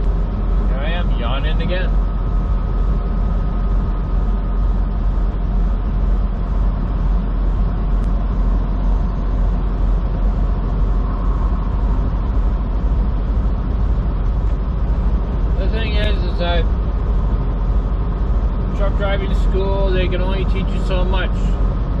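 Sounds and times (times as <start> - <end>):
road noise: 0.0 - 22.0
truck engine: 0.0 - 22.0.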